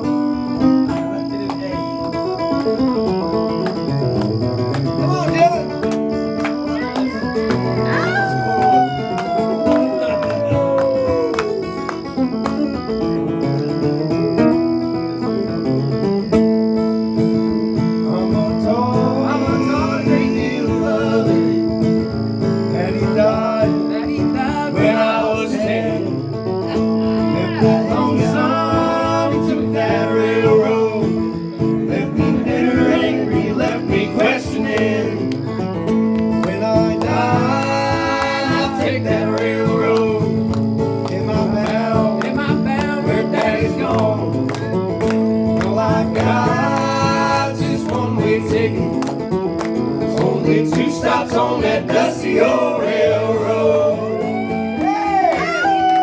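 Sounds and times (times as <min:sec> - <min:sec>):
acoustic guitars strumming: 0:00.0 - 0:56.0
guitar lead solo: 0:00.3 - 0:18.1, 0:53.8 - 0:56.0.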